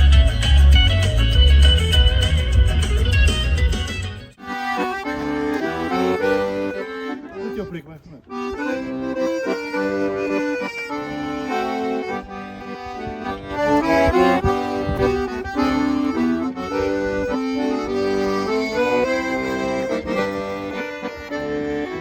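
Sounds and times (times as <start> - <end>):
accordion playing a melody: 0.0 - 22.0.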